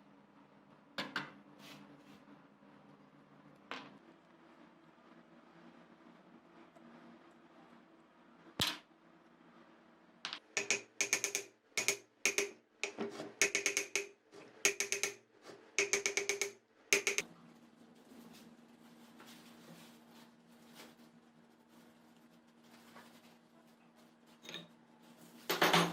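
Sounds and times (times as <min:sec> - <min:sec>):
rapid metallic clicking and tapping: 0:10.3 - 0:15.2, 0:15.8 - 0:17.2.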